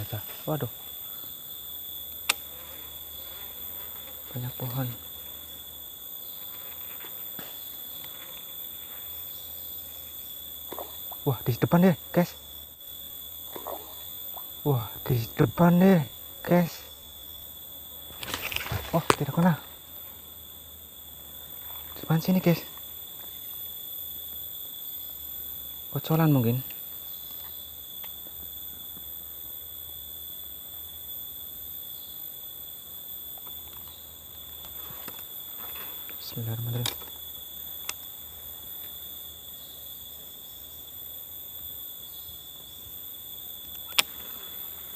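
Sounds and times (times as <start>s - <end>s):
insect chorus: 0.0s - 44.9s
faint clicks: 43.6s - 44.5s.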